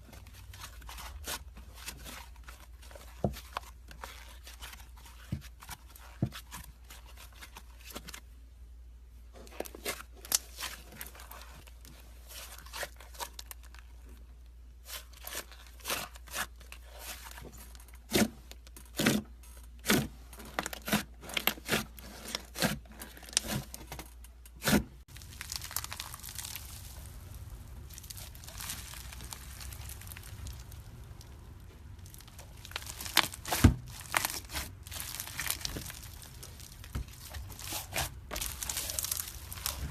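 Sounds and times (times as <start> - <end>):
slime squishing: 0.0 - 8.1, 9.3 - 39.9
slime popping and crackling: 25.1 - 39.9.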